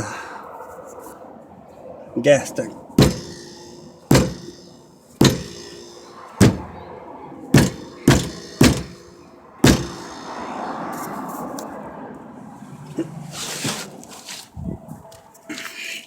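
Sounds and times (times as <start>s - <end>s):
thuds on metal gas tank: 3.0s - 6.9s, 7.6s - 10.2s.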